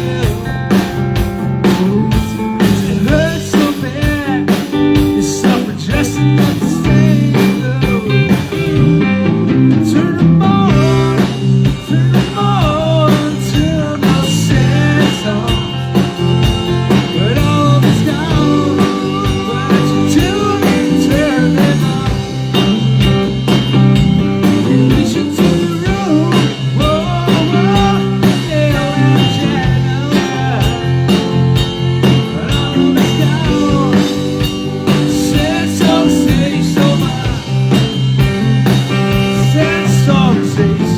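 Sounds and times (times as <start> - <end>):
bass guitar groove: 0.0 - 40.9
drum kit: 0.0 - 40.9
electric guitar lead: 0.0 - 40.9.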